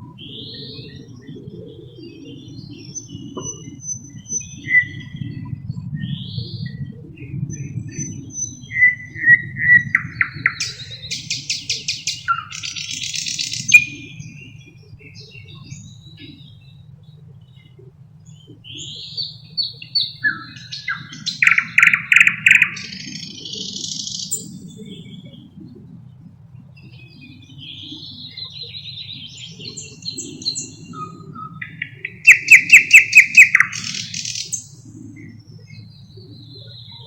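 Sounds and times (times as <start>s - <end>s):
thrush nightingale singing: 0.2s - 16.8s, 18.3s - 25.4s, 26.8s - 37.0s.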